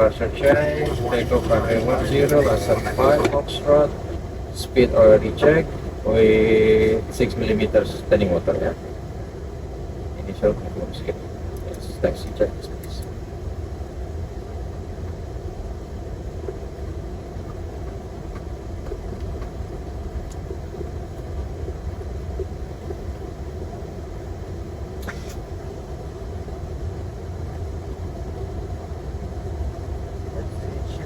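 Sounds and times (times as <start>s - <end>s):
cockpit air flow: 0.0s - 13.4s
jet engines rumbling: 0.0s - 31.0s
brief click: 25.0s - 25.4s.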